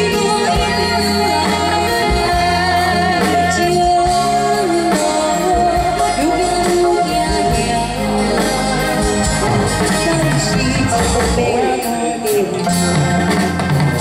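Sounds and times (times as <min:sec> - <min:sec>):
live band playing pop song: 0:00.0 - 0:14.0.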